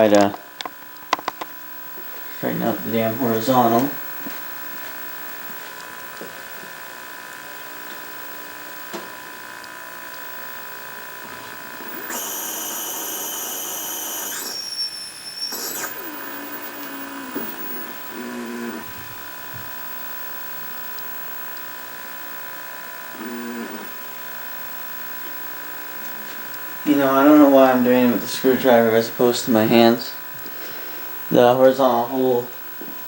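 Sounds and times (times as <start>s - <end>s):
television electrical buzz: 0.0s - 33.0s
shrill whistle with overtones: 11.9s - 18.1s.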